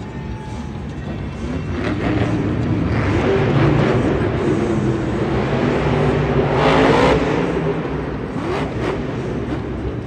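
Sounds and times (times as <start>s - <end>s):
music from stadium speakers: 0.0s - 6.5s.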